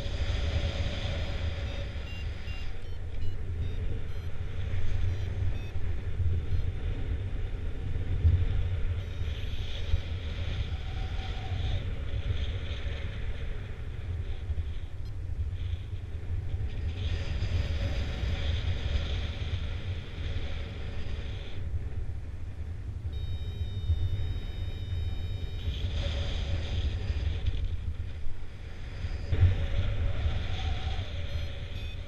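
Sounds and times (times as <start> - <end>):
high electronic tone: 23.2 - 25.7.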